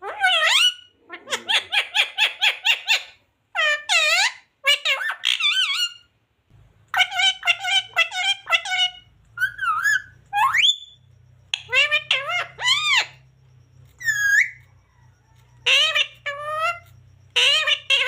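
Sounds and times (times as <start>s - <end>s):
parrot calling shrilly: 0.0s - 6.1s, 6.9s - 18.0s
parrot whistling: 7.0s - 18.0s.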